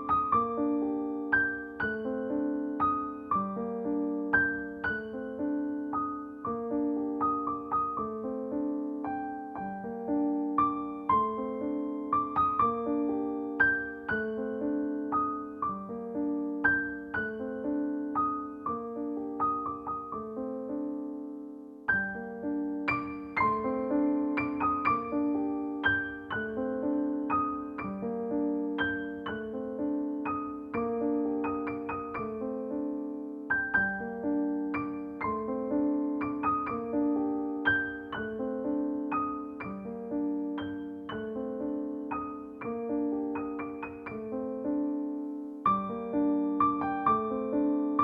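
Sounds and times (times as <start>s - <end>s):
gentle piano music: 0.0s - 48.0s.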